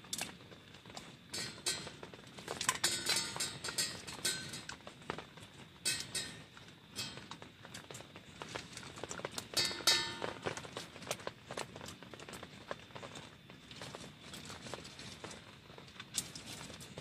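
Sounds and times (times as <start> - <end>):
cutlery and dishes clinking: 2.7 - 4.8, 5.9 - 6.4, 9.6 - 10.6.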